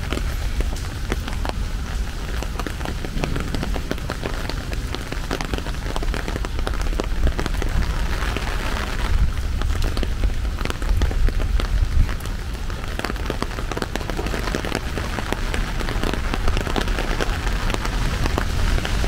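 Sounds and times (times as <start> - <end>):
rain falling: 0.0 - 19.0
raindrops ticking sharply: 0.0 - 19.0
low rumble: 2.1 - 8.4.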